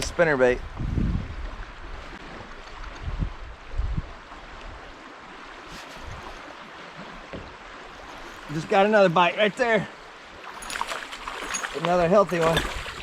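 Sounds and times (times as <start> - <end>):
wind thumps on microphone: 0.0 - 1.6, 2.8 - 4.2, 12.4 - 13.0
flowing creek water: 0.0 - 13.0.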